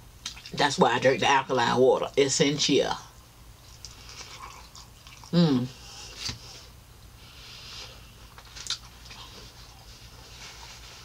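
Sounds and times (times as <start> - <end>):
person chewing: 3.6 - 6.6, 8.0 - 11.0.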